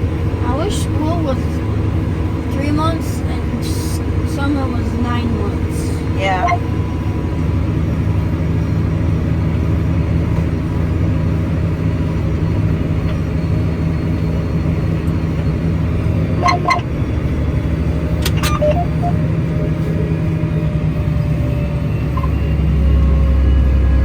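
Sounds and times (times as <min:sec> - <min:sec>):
tractor engine droning: 0:00.0 - 0:24.0
high-pitched chirps: 0:16.4 - 0:16.9, 0:18.5 - 0:19.2.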